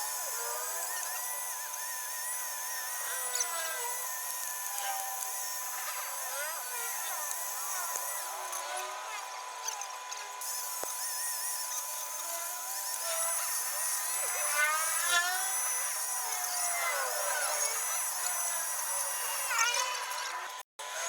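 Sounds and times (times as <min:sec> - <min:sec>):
small power tool running: 0:00.0 - 0:21.0.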